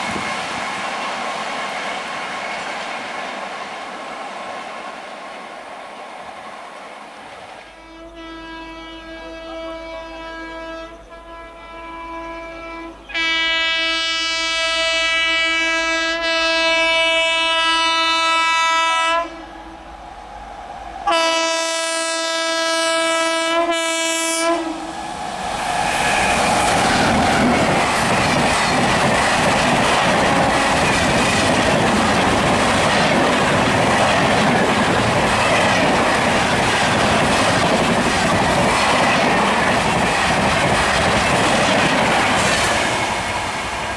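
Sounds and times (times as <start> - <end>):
train passing at speed: 0.0 - 43.9
train horn blasts: 7.6 - 19.8, 21.0 - 25.0.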